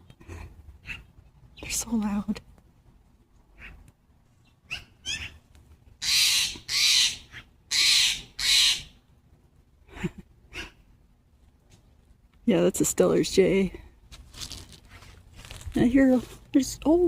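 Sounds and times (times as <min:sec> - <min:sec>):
jay giving harsh calls: 0:04.7 - 0:05.4, 0:06.0 - 0:09.0.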